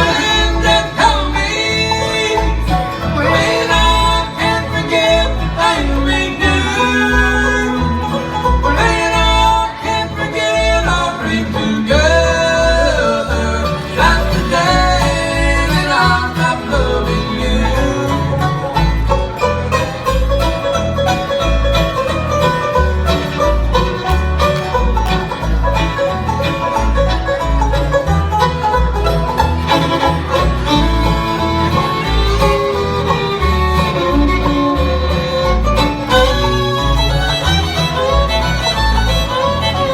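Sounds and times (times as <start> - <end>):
bluegrass band playing: 0.0 - 39.9.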